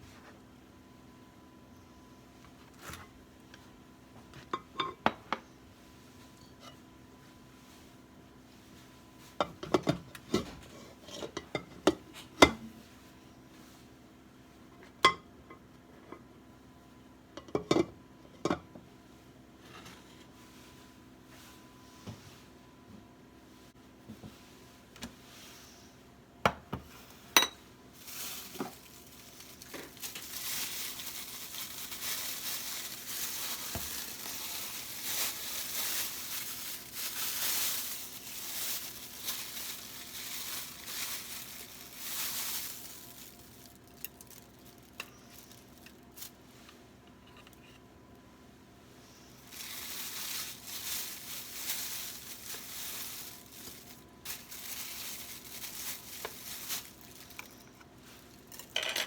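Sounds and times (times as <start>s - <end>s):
kitchenware clinks: 58.6s - 59.0s.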